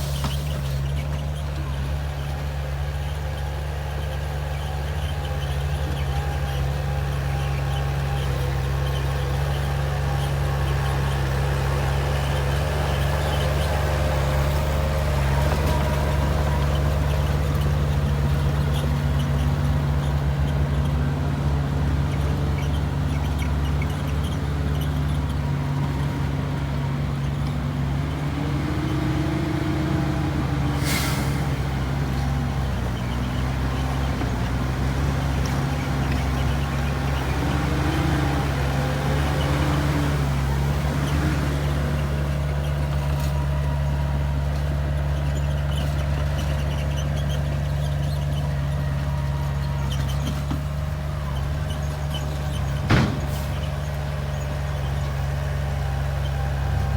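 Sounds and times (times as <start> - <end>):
bulldozer diesel engine under load: 0.0 - 56.9
short sharp hiss: 30.8 - 31.5.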